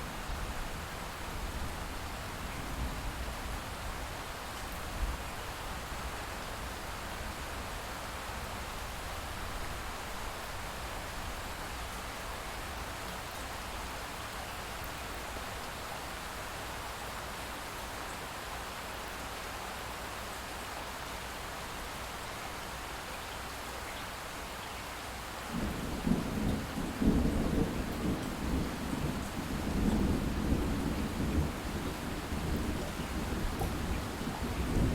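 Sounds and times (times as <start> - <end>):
light rain hissing: 0.0 - 34.9
distant thunder rumble: 25.5 - 34.9.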